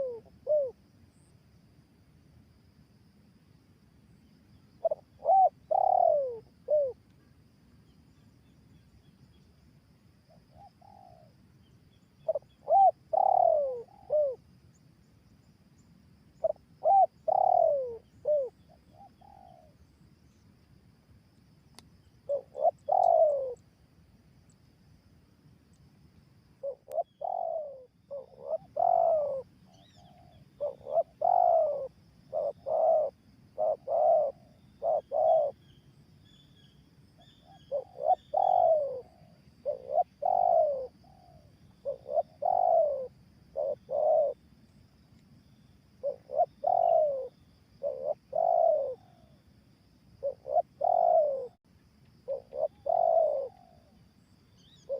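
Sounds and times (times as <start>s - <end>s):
dove cooing: 0.0s - 0.8s, 4.8s - 7.0s, 10.4s - 11.3s, 12.2s - 14.4s, 16.4s - 19.8s, 22.2s - 23.6s, 26.6s - 35.7s, 37.2s - 44.4s, 46.0s - 49.4s, 50.2s - 51.6s, 52.2s - 54.0s, 54.6s - 54.9s.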